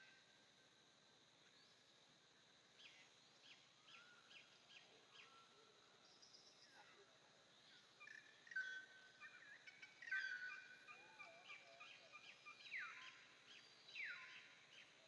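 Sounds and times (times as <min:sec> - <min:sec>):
faint birdsong: 0:00.0 - 0:00.7, 0:01.4 - 0:15.0.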